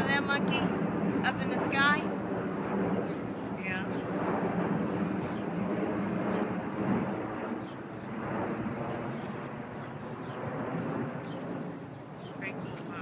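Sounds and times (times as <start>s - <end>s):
airplane engine drone overhead: 0.0s - 13.0s.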